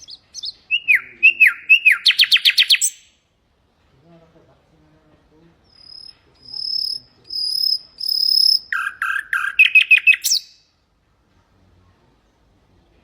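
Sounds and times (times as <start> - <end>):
nightingale singing: 0.0 - 3.3, 5.6 - 10.8.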